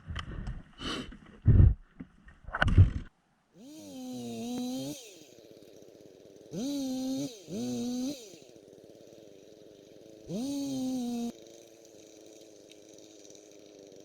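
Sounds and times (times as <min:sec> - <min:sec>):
two-stroke engine idling and revving: 0:03.6 - 0:14.0.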